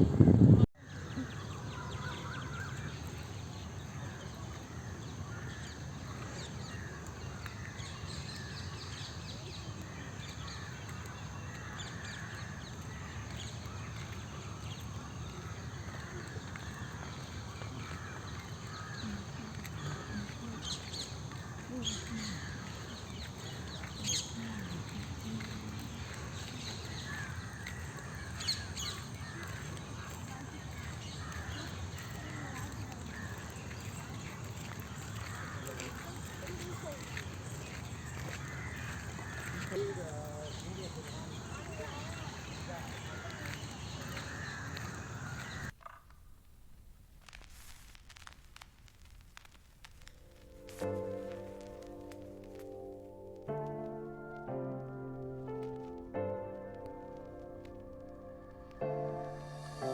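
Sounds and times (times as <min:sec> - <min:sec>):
birds chirping and calling: 0:00.0 - 0:46.0
outdoor background noise: 0:00.0 - 0:59.9
faint distant voices: 0:13.6 - 0:45.7.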